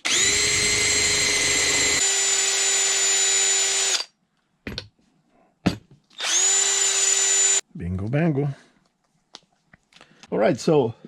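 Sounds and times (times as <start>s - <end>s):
electric drill whining: 0.0s - 4.1s, 6.2s - 7.6s.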